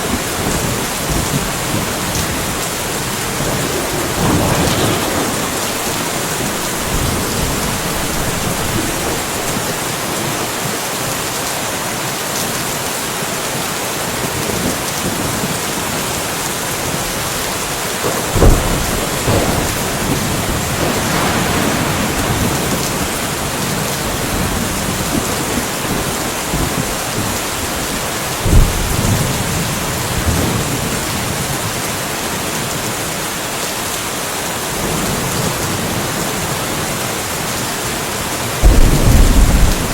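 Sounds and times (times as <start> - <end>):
thunder cracking and rumbling: 0.0 - 10.4, 16.8 - 31.8, 38.2 - 39.9
rain falling: 0.0 - 39.9.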